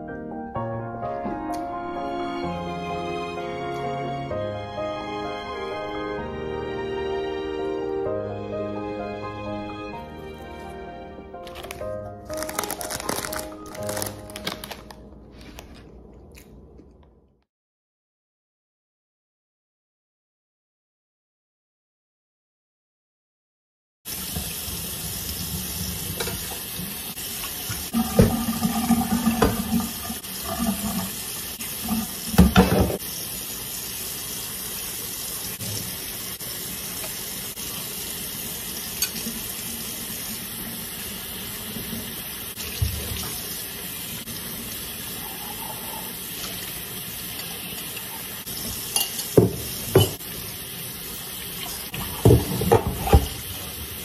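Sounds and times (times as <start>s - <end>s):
dishes clattering in sink: 26.1s - 26.6s, 27.9s - 29.9s, 32.3s - 33.0s, 47.4s - 50.2s, 51.9s - 53.5s
tap running into metal sink: 27.4s - 31.1s, 31.8s - 33.0s, 48.6s - 50.2s, 52.0s - 53.4s.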